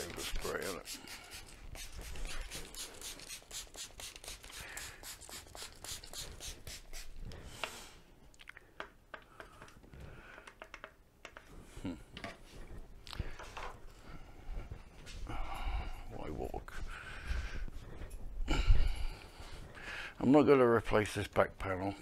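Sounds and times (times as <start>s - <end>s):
hand scrubbing rubbing strokes: 0.0s - 8.0s.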